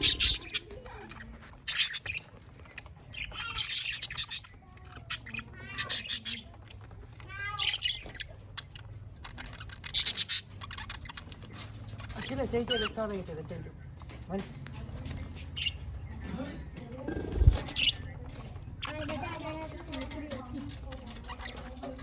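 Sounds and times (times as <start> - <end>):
soft bird warbling: 0.0 - 1.2, 17.1 - 18.1
budgerigars chirping and squawking: 0.0 - 14.3, 14.9 - 22.0.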